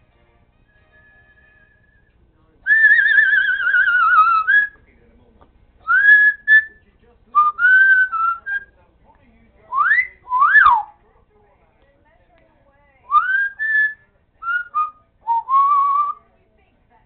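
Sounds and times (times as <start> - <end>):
parrot whistling: 1.0 - 2.1, 2.7 - 4.8, 5.9 - 6.8, 7.4 - 8.7, 9.7 - 10.9, 13.1 - 16.2.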